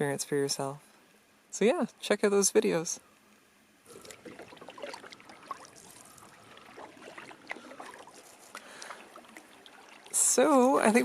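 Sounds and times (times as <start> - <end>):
paddle splashing and water trickling: 3.8 - 11.0.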